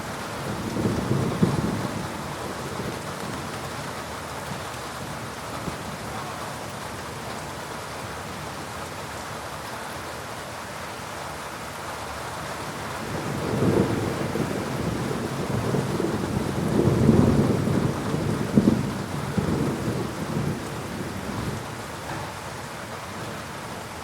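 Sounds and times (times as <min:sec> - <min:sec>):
heavy rain falling: 0:00.0 - 0:24.0
low rumble of thunder: 0:00.4 - 0:03.6, 0:13.0 - 0:23.8.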